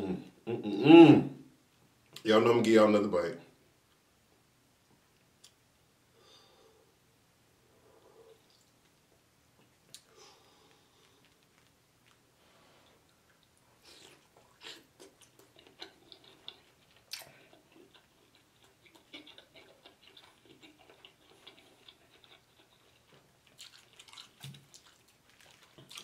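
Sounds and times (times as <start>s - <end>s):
close-up chewing with mouth clicks: 9.6s - 26.0s.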